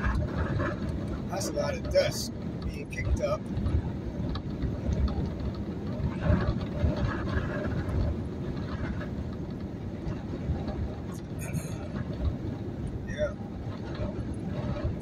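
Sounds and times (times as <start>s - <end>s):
road noise inside truck cab: 0.0s - 15.0s
wind gusts buffeting truck: 0.0s - 15.0s.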